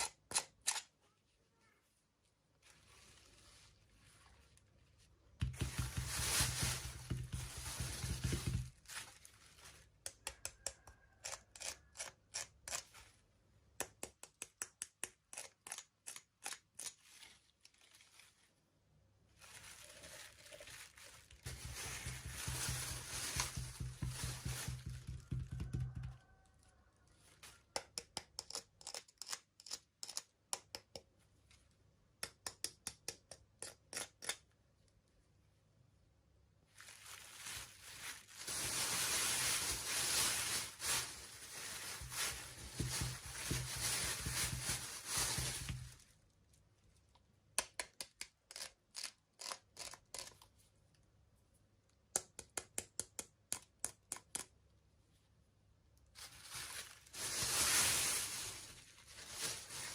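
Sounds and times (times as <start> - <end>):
plastic packaging crinkling: 5.4 - 10.0, 16.8 - 18.6, 19.3 - 26.4, 36.7 - 46.1, 56.2 - 59.9.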